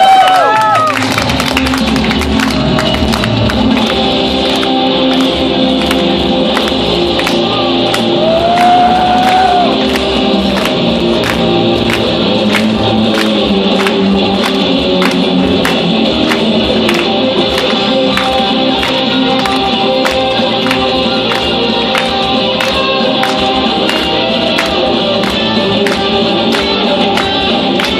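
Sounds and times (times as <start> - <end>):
electric lead guitar: 0.4 - 27.9.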